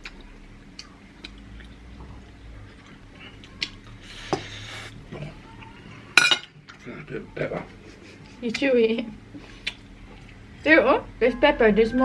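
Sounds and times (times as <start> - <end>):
chewing and biting food: 0.0 - 4.1
low steady hum: 0.0 - 12.0.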